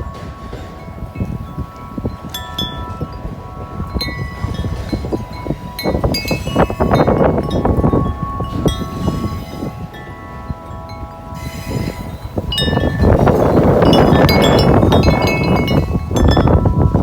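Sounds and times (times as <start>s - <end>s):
wind chime ringing: 0.0s - 17.0s
wind gust on microphone: 0.0s - 17.0s.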